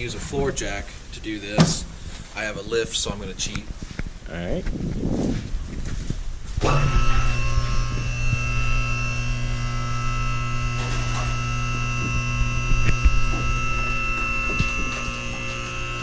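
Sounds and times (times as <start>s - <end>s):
hydraulic lift pump motor: 6.5s - 16.0s.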